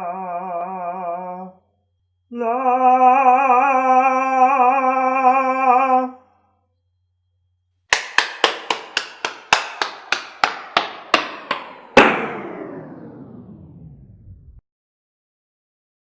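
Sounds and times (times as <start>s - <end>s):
loud ringing hit: 10.6s - 13.4s.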